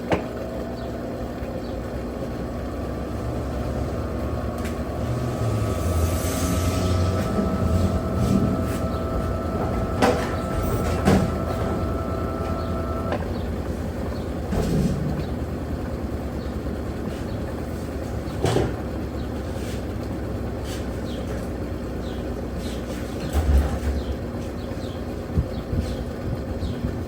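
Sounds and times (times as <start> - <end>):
washing machine rumbling: 0.0 - 27.0
whine: 2.6 - 13.4.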